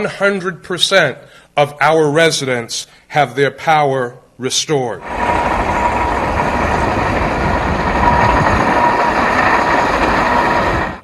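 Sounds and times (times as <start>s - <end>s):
heavy vehicle engine running: 5.0s - 11.0s.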